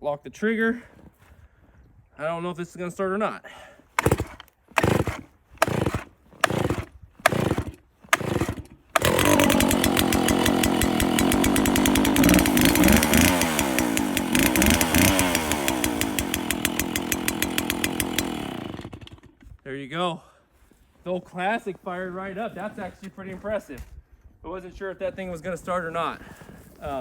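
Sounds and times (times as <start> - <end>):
chainsaw engine running: 4.0 - 19.4
chainsaw starter cord pulls: 4.0 - 19.6.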